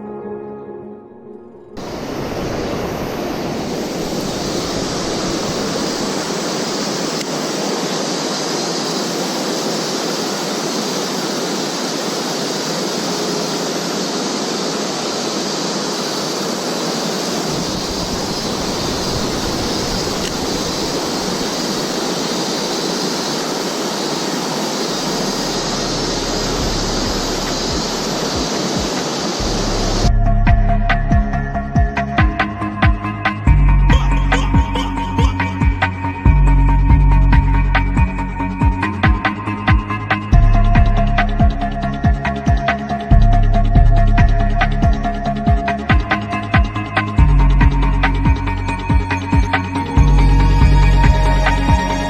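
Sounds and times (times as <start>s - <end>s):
mountain stream flowing: 1.5s - 30.1s
low rumble: 25.2s - 28.3s.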